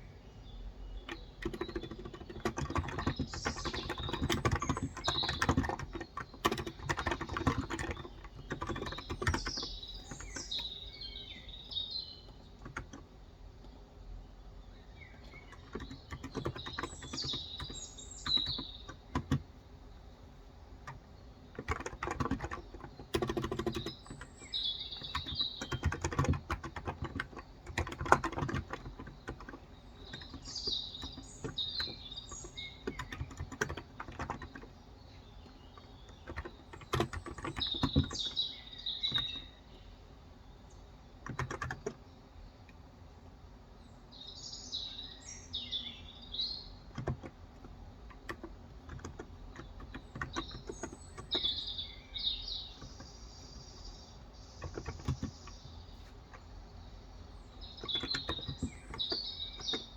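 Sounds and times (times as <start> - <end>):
birds chirping: 0.0 - 59.9
keyboard typing: 1.0 - 11.4, 12.3 - 13.1, 15.2 - 19.6, 20.8 - 34.8, 35.4 - 39.4, 41.2 - 42.0, 46.7 - 51.7, 54.6 - 56.5, 57.5 - 59.9.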